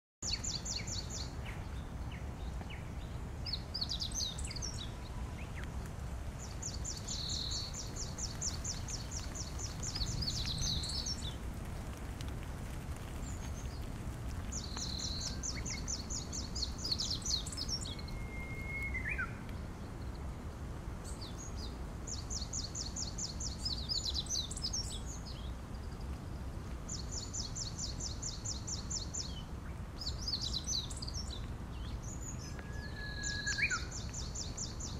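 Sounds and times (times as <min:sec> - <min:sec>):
bird chirps: 0:14.6 - 0:20.2, 0:30.0 - 0:34.9
low bird whistle: 0:17.9 - 0:19.4, 0:32.4 - 0:34.0
songbird high trill: 0:32.4 - 0:34.0.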